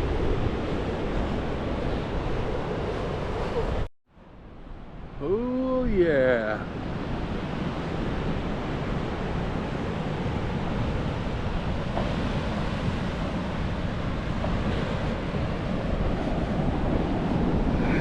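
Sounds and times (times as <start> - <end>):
wind buffeting microphone: 0.0 - 3.9, 6.6 - 18.0.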